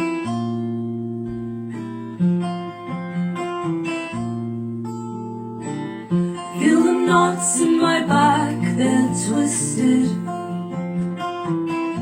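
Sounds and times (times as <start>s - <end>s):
acoustic guitar chords: 0.0s - 12.0s
person singing: 6.3s - 10.7s.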